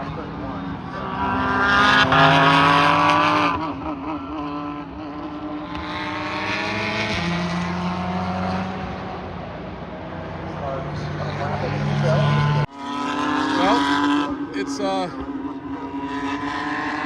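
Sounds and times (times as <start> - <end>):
race cars passing: 0.0 - 17.0.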